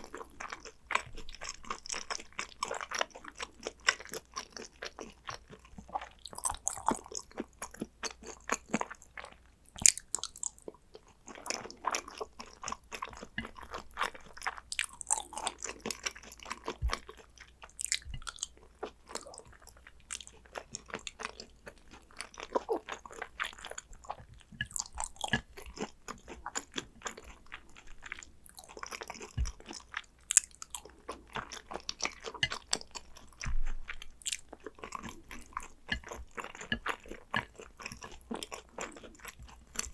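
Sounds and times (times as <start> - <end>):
wet chewing mouth clicks: 11.3 - 39.9.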